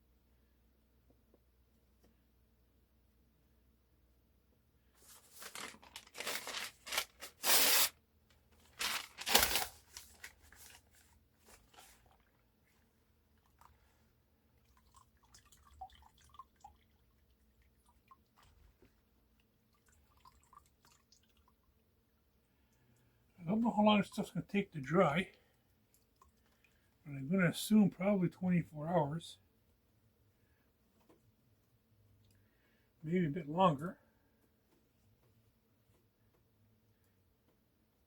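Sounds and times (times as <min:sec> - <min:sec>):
paper crackling: 0:05.0 - 0:07.9, 0:08.6 - 0:12.2
newspaper ripping: 0:05.0 - 0:08.0, 0:08.6 - 0:12.0.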